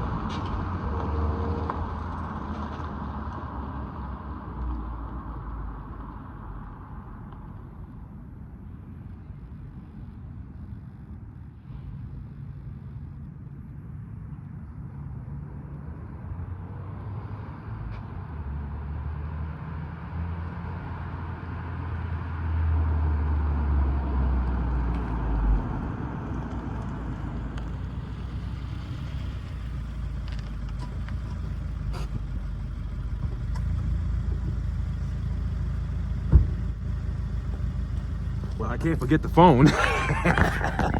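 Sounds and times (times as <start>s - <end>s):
car engine humming: 24.4s - 40.9s.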